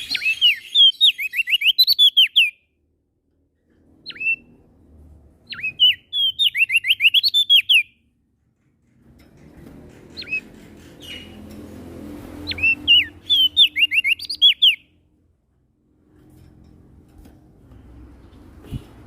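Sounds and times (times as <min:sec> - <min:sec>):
songbird whistled chirps: 0:00.0 - 0:02.6, 0:04.0 - 0:04.5, 0:05.5 - 0:08.0, 0:12.4 - 0:14.9.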